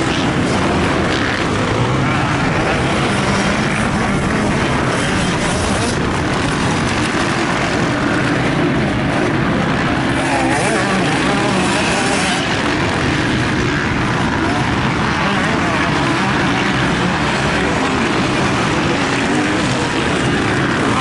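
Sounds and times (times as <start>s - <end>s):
motocross bike engines revving: 0.0s - 21.0s.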